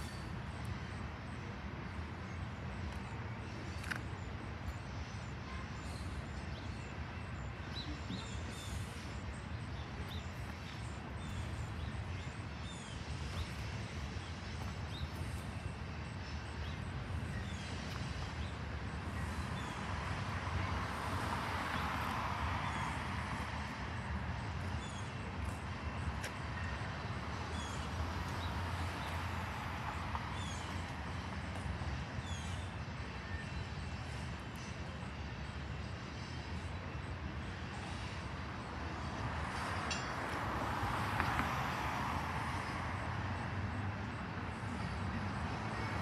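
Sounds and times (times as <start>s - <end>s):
distant freight train rumble: 0.0s - 46.0s
car passing: 19.5s - 25.0s, 39.2s - 44.0s.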